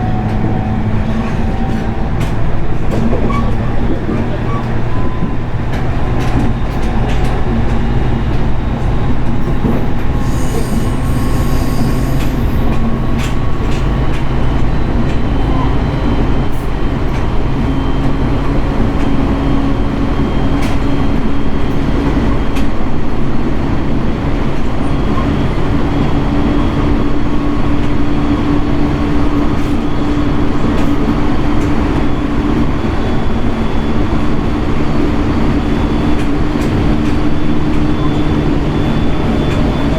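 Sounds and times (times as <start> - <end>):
train wheel-on-rail and motor noise: 0.0 - 39.9
high squeal: 3.3 - 18.1, 31.8 - 39.9.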